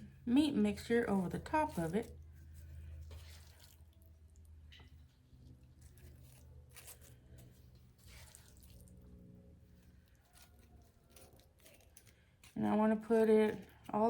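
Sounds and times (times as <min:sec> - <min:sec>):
low steady hum: 0:00.0 - 0:14.0
spoon scraping on corn chips: 0:05.4 - 0:14.0.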